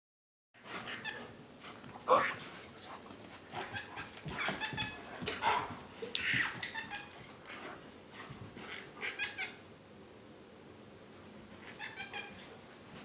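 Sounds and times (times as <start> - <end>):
high-pitched animal calls: 2.1 - 2.4, 11.6 - 12.5.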